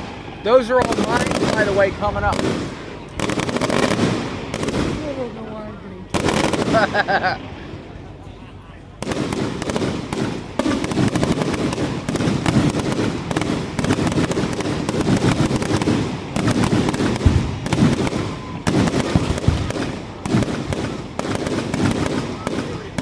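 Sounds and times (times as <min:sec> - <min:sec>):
heavy firework booms: 0:00.0 - 0:05.5, 0:06.1 - 0:07.4, 0:09.0 - 0:23.0
fireworks bangs and crackling: 0:00.0 - 0:07.6, 0:09.0 - 0:23.0.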